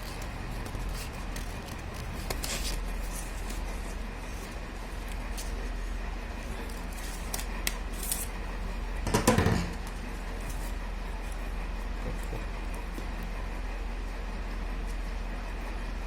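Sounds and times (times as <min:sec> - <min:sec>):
paper clicks and rustles: 0:00.0 - 0:08.5
steady low hum: 0:00.0 - 0:16.0.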